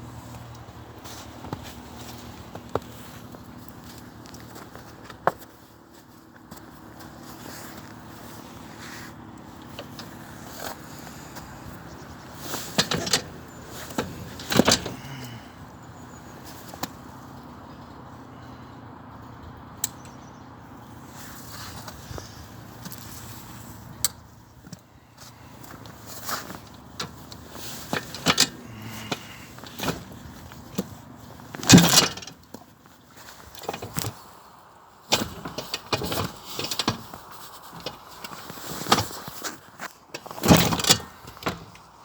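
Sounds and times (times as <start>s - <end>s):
motorcycle engine turning over: 6.6s - 18.0s, 25.6s - 32.7s.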